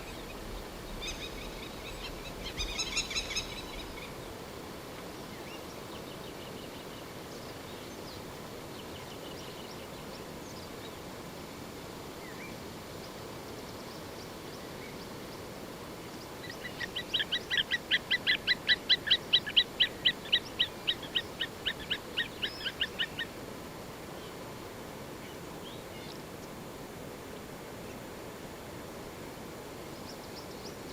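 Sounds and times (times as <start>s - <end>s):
faint chirps of other birds: 0.0s - 4.4s, 5.1s - 11.0s, 12.2s - 23.4s, 29.8s - 30.9s
steady outdoor hiss: 0.0s - 30.9s.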